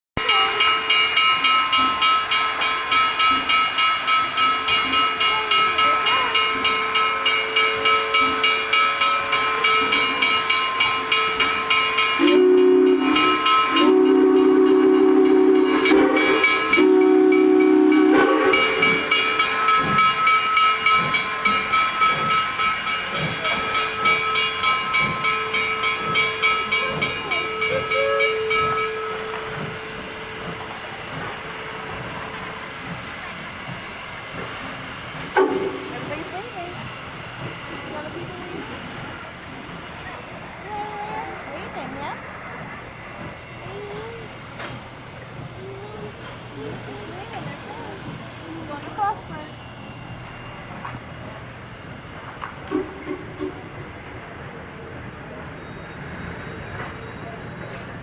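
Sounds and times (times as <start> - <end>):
steam locomotive exhaust chuffing: 0.2 - 58.0
steam hiss: 0.4 - 58.0
steam whistle blasts: 11.0 - 20.0, 25.4 - 32.6, 35.4 - 36.2, 52.6 - 53.8.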